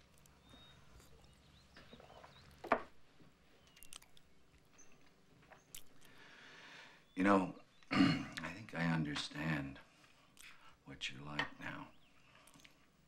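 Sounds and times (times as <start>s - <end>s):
chewing and eating: 0.0s - 6.5s, 10.0s - 10.7s, 12.2s - 13.0s.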